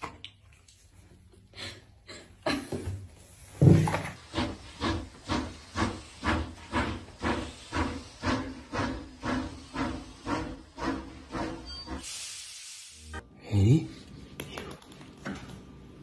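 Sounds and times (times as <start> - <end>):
steam locomotive chuffing: 4.2 - 12.8.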